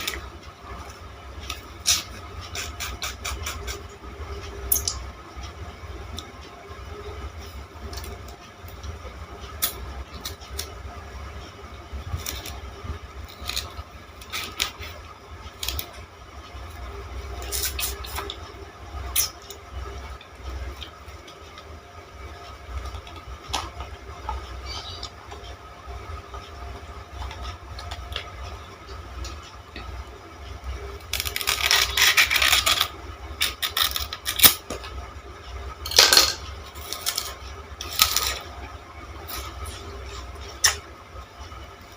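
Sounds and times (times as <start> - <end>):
sugar cane crunching: 12.2 - 14.9, 31.0 - 34.7, 36.7 - 38.5.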